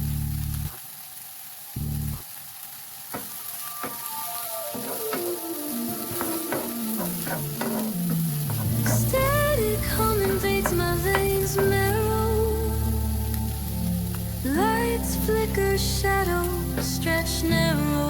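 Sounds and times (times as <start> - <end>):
food sizzling in hot oil: 0.0 - 18.0
instrumental music: 3.2 - 18.0
utensil clicking against pan: 4.8 - 5.4, 6.1 - 12.1.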